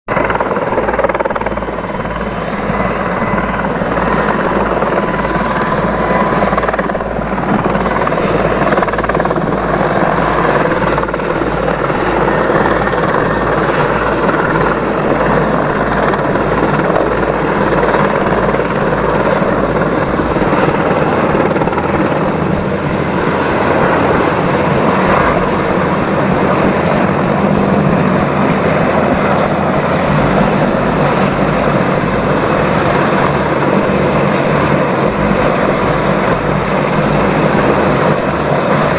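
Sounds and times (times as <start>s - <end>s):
helicopter engine noise: 0.0s - 38.9s
helicopter rotor beating: 0.1s - 38.9s.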